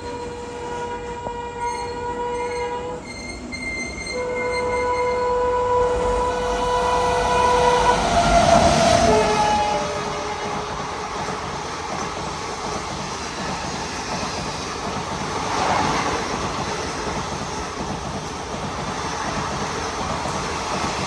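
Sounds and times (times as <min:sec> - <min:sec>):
train horn blasts: 0:00.0 - 0:11.7
train rumble: 0:00.0 - 0:21.0.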